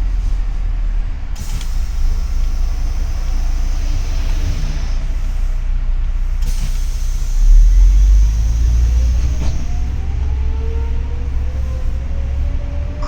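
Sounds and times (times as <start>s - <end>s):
bus engine rumble: 0.0s - 13.0s
rising engine whine: 8.9s - 13.0s.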